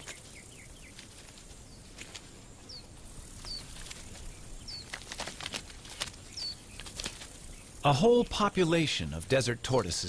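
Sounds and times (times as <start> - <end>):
small bird chirping: 0.0 - 5.5, 6.1 - 7.9.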